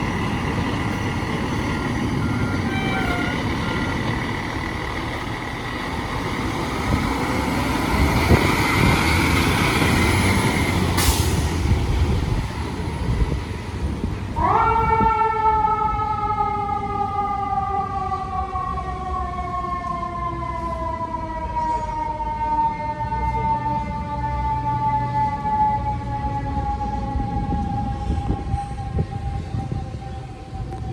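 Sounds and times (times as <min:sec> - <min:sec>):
fire engine running: 0:00.0 - 0:30.9
sharp hiss of air: 0:11.0 - 0:11.7.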